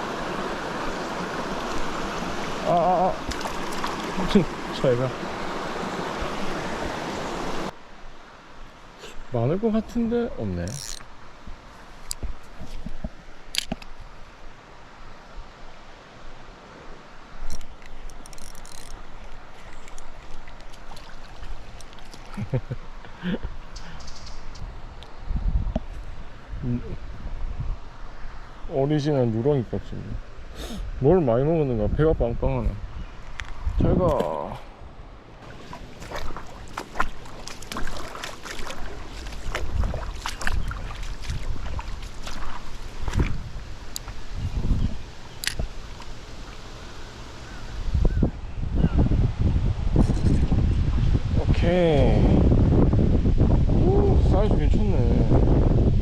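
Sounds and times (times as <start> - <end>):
stream water running: 0.0 - 31.8, 32.7 - 48.2
fishing tackle rattling and clicking: 10.7 - 11.1, 17.5 - 20.2
wind on microphone: 23.4 - 28.4, 31.8 - 34.5, 35.4 - 45.9, 47.6 - 56.0.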